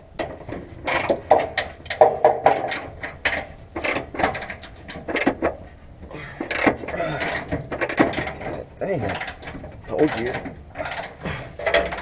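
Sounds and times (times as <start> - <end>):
ratchet wrench clicking: 3.8 - 5.4, 6.5 - 8.4.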